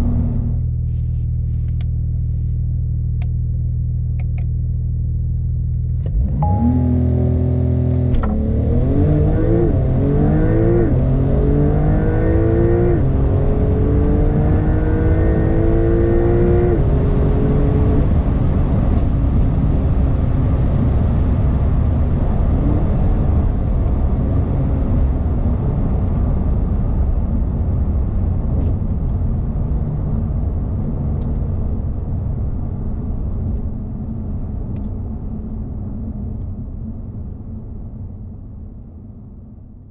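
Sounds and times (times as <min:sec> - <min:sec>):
car engine accelerating hard: 0:06.0 - 0:27.0.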